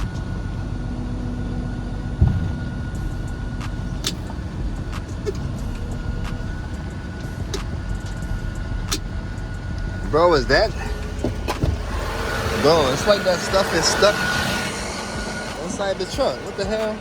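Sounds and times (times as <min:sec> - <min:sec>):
diesel truck engine running: 0:00.0 - 0:17.0
steady high whine: 0:00.0 - 0:17.0
heavy thump: 0:02.2 - 0:04.4, 0:10.9 - 0:12.1.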